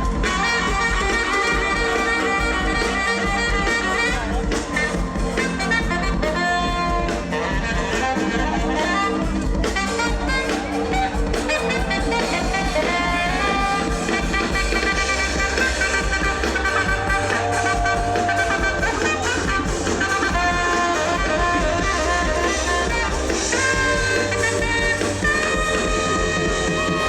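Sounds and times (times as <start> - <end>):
bass: 0.0 - 27.0
drums: 0.0 - 27.0
horn section playing: 0.0 - 27.0.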